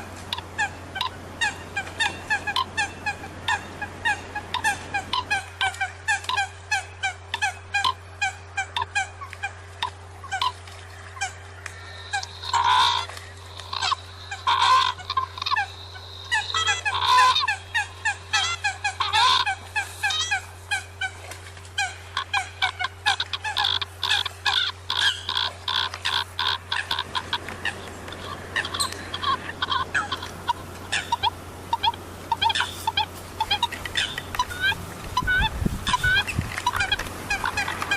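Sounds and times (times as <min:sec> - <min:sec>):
coots honking calls: 0:00.0 - 0:37.9
low steady hum: 0:00.0 - 0:37.9.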